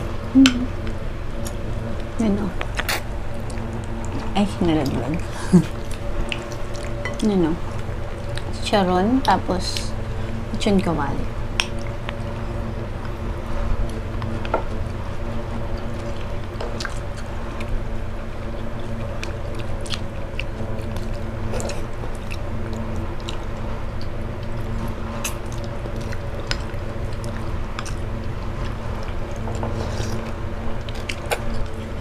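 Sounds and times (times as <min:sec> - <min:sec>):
people chewing noodles: 0:00.0 - 0:32.0
steady low hum: 0:00.0 - 0:32.0.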